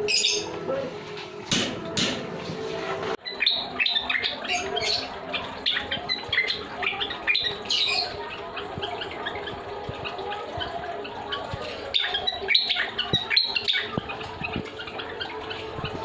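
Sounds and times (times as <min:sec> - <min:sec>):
cage birds chirping and squawking: 0:00.0 - 0:16.0
sharp knocks: 0:01.5 - 0:02.4.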